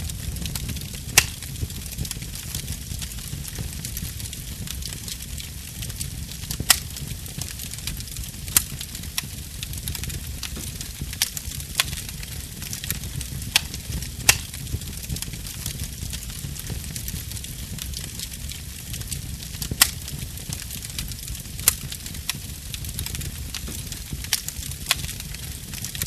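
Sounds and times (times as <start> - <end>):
burning wood crackling pops: 0.0 - 26.0
fire rumble and hiss: 0.0 - 26.0.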